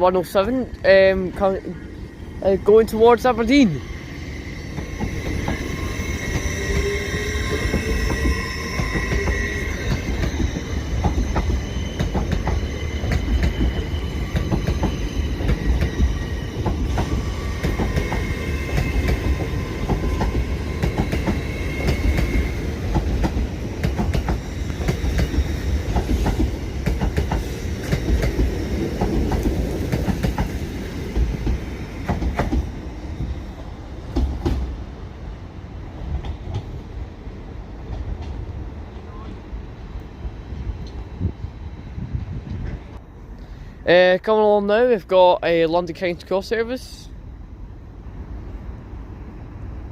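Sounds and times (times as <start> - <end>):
train rumble: 0.0 - 49.9
high squealing tones: 2.0 - 22.8
train wheels clicking over rail joints: 4.2 - 33.4, 34.0 - 34.8.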